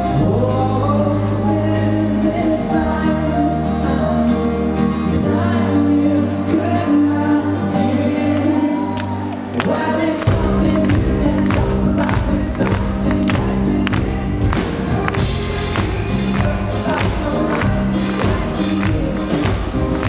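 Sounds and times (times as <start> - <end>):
drums: 0.0 - 20.0
person singing: 0.0 - 20.0
pop-rock band playing: 0.0 - 20.0.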